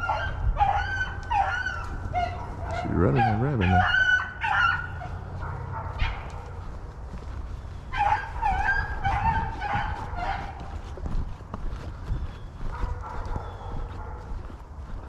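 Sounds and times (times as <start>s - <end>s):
hound baying: 0.0s - 11.1s, 12.6s - 15.0s.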